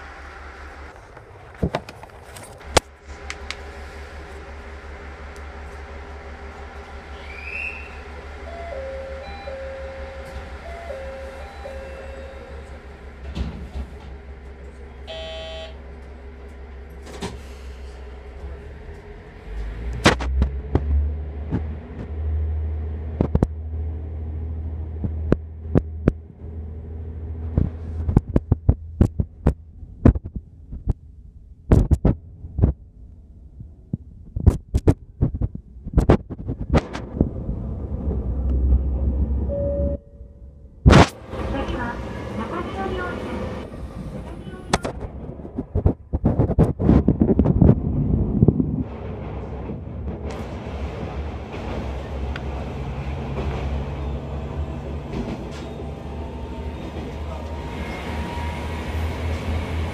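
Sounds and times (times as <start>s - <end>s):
wheels clacking on track: 0.0s - 15.1s, 48.6s - 59.9s
train rumble: 0.0s - 59.9s
short pitched tone: 7.3s - 12.6s, 15.1s - 15.8s, 39.5s - 40.6s.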